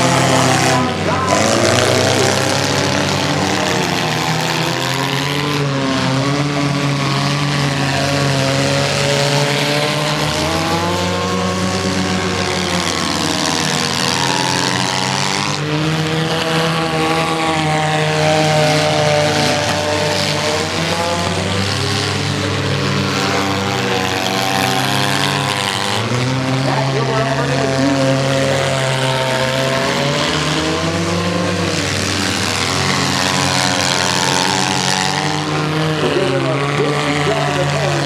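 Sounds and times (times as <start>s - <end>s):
small car engines racing: 0.0s - 38.0s.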